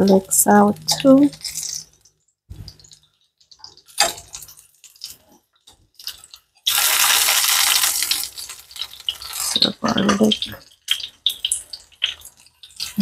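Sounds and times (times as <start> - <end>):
metal tongs clicking on pan: 0.8 - 1.8
vegetables sizzling in oil: 6.0 - 13.0.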